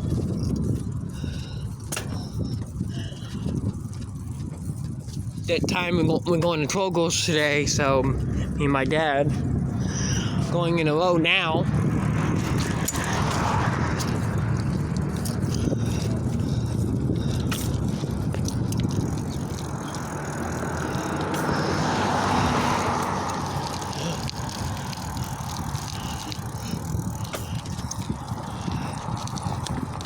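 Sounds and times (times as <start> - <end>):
bicycle tyre noise on road: 0.0 - 30.0
passing vehicle: 0.0 - 30.0
wind rush: 0.0 - 30.0
small rattles: 12.3 - 30.0.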